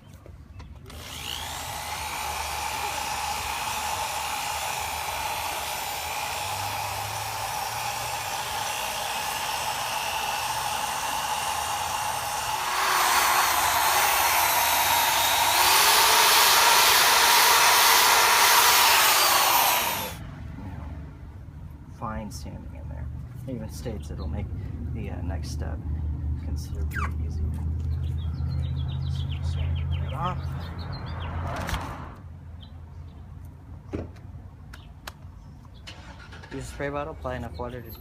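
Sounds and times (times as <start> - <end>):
electric drill motor running: 0.8 - 20.2.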